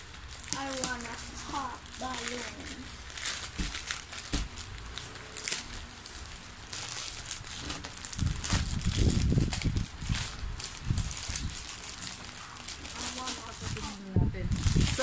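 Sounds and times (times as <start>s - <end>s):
plastic packaging crinkling: 0.0s - 15.0s
sharp plastic crackles: 0.0s - 15.0s
package knocking and rubbing: 3.4s - 4.6s.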